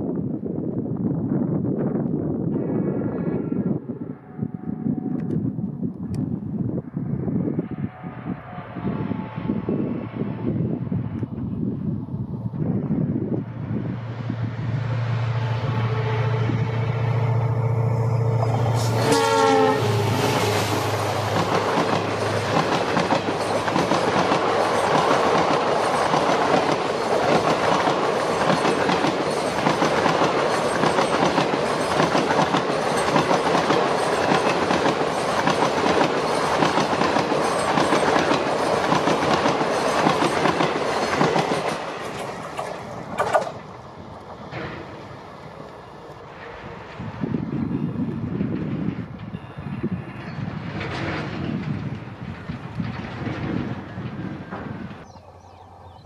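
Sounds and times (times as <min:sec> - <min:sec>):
diesel locomotive passing: 0:02.5 - 0:56.0
locomotive horn: 0:03.0 - 0:05.4, 0:07.5 - 0:10.5, 0:15.0 - 0:22.3
clickety-clack of wheels: 0:21.3 - 0:43.7, 0:46.4 - 0:55.1.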